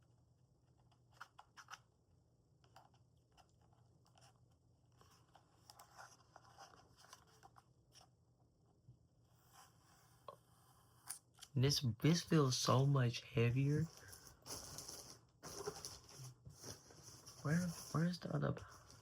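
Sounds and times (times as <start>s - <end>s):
packaging rustling: 13.6s - 19.0s.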